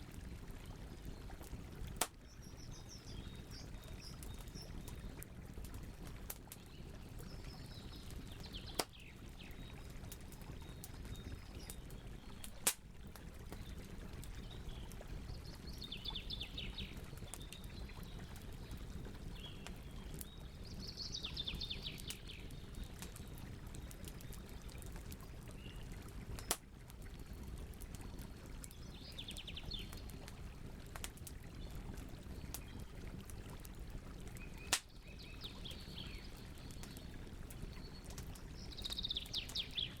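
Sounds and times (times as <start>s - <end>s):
campfire burning: 0.0s - 40.0s
fire popping: 0.1s - 2.7s, 7.9s - 20.5s, 21.8s - 29.1s, 29.9s - 35.2s.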